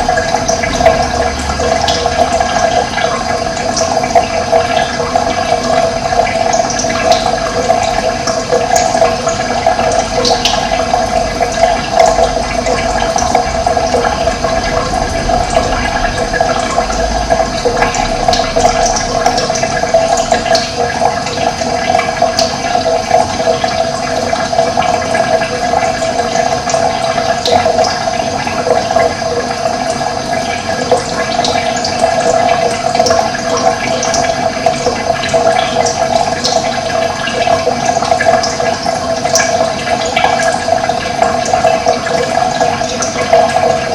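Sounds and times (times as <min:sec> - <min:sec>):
running water rushing: 0:00.0 - 0:43.9.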